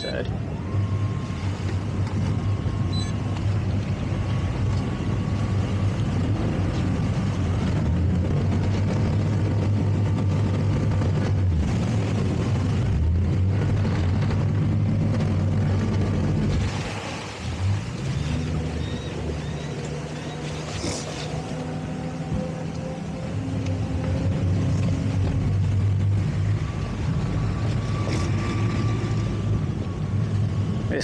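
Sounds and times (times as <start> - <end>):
boat engine running: 0.0 - 31.0.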